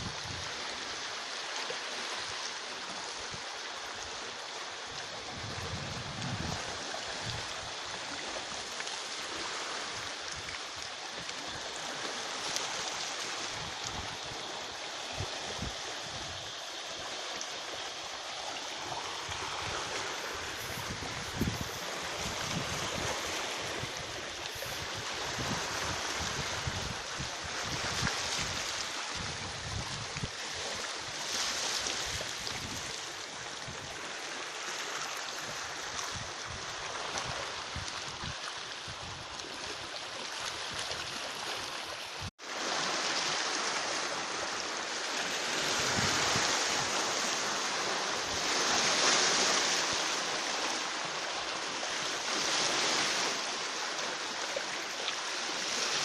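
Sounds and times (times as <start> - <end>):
sea surf washing on shore: 0.0 - 56.0
wind buffeting microphone: 5.2 - 7.8, 19.0 - 30.7.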